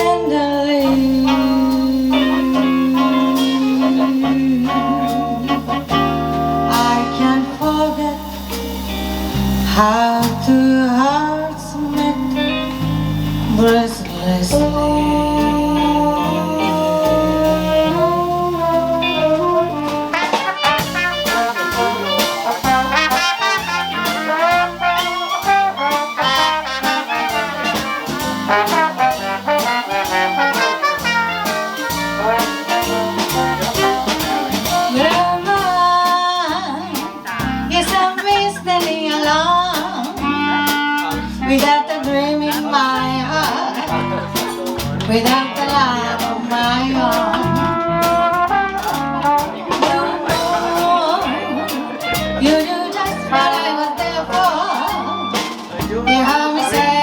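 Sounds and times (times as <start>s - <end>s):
trombone: 0.0s - 57.0s
walking bass: 0.0s - 57.0s
trumpet: 0.7s - 13.8s, 14.4s - 57.0s
sharp rhythm strokes: 19.0s - 35.9s.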